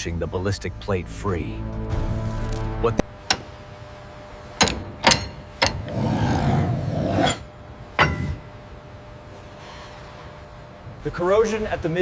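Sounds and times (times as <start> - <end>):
metallic clanks on steel: 3.2 - 3.7, 4.5 - 5.9, 7.2 - 8.6
rasping metal scrape: 5.1 - 8.5.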